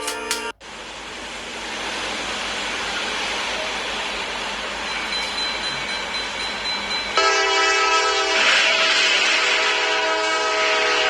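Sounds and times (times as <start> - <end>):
train horn: 0.0 - 0.6, 7.2 - 11.0
train rumbling past: 0.0 - 11.0.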